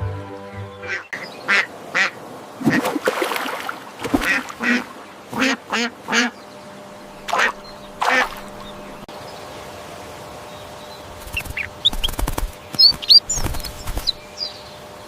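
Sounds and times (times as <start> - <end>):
outdoor background noise: 0.0 - 15.0
duck quacking: 0.8 - 2.2, 4.2 - 6.4, 7.3 - 8.4.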